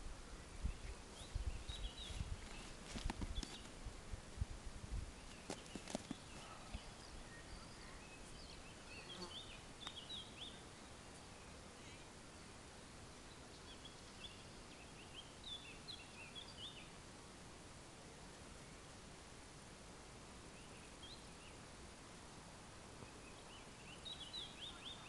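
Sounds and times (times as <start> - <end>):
outdoor background hiss: 0.0 - 25.0
faint birdsong chirps: 0.1 - 3.8, 5.0 - 17.1, 20.4 - 21.8, 22.8 - 25.0.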